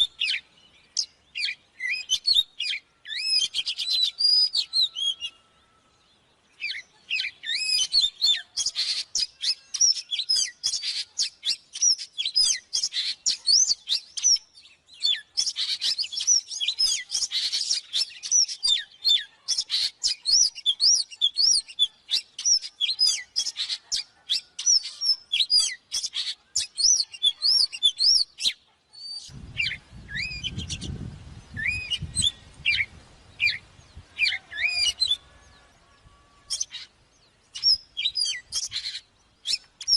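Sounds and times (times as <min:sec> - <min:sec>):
bird singing whistles and chirps: 0:00.0 - 0:05.8, 0:06.5 - 0:36.9, 0:37.5 - 0:39.9.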